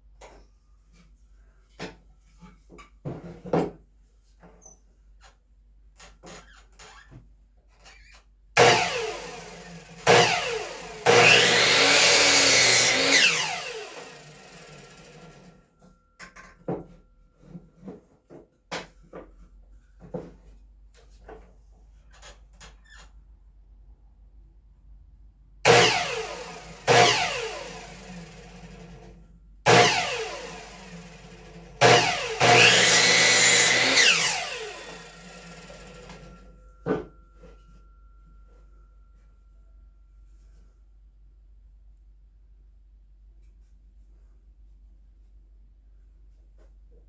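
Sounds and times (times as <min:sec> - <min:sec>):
electric saw cutting wood: 0:08.6 - 0:15.5, 0:25.7 - 0:29.1, 0:29.7 - 0:36.4.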